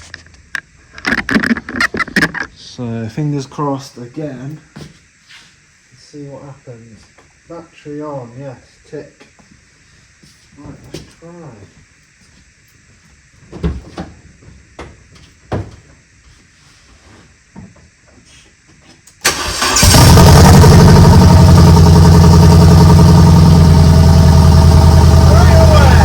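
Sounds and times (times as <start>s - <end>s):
car engine starting and running: 19.2s - 26.0s.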